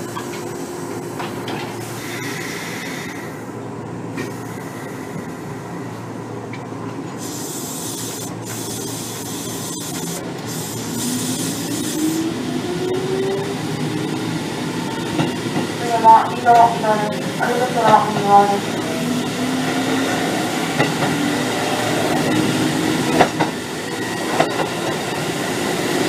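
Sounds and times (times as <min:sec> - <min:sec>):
train wheels rumbling: 0:00.0 - 0:26.0
hiss: 0:01.8 - 0:03.3, 0:07.2 - 0:12.2.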